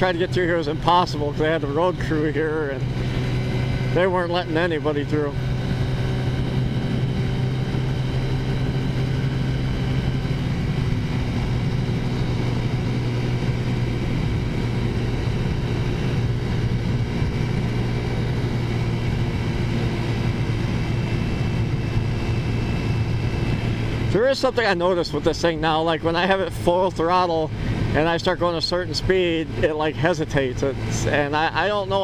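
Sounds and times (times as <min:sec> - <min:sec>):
scooter engine cruising: 0:00.0 - 0:32.0
wind on microphone: 0:05.2 - 0:24.1.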